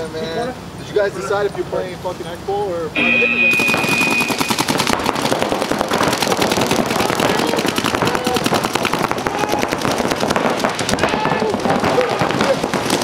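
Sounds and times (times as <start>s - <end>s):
high electronic tone: 3.0s - 4.7s
paintball markers firing rapidly: 3.6s - 13.0s.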